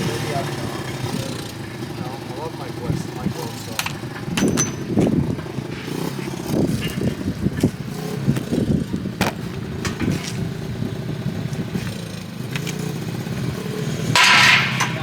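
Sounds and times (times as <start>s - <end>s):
vehicle engine running: 0.0s - 14.2s
clanks and knocks: 3.6s - 10.5s.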